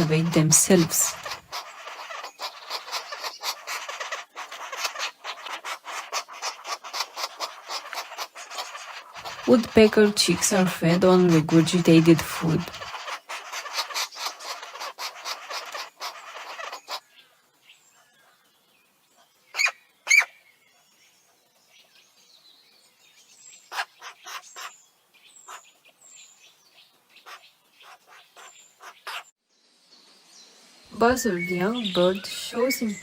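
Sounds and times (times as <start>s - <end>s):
loud short bird calls: 0.0s - 10.0s, 11.2s - 17.4s, 19.5s - 20.6s, 23.5s - 26.3s, 27.1s - 29.3s
nestlings rasping begging chatter: 0.0s - 17.1s, 19.5s - 20.3s, 23.6s - 25.9s, 27.1s - 29.3s, 31.0s - 33.0s.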